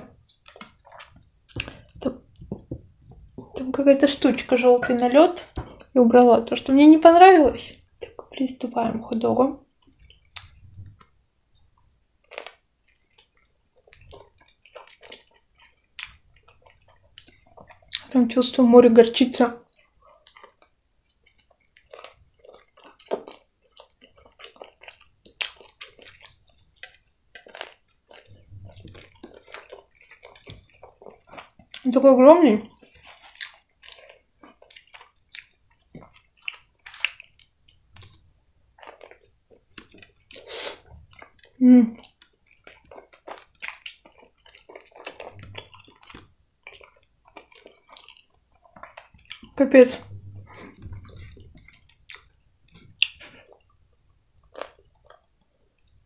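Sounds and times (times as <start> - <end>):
person chewing food: 0.0 - 6.3, 7.6 - 8.5, 9.6 - 18.2, 19.6 - 31.9, 32.7 - 56.0
soft crunches of bread: 19.7 - 31.8.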